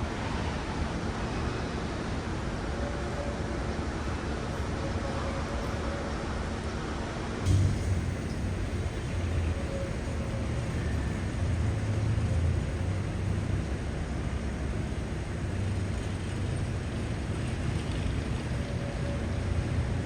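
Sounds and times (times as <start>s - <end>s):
low rumble of road traffic: 0.0s - 20.0s.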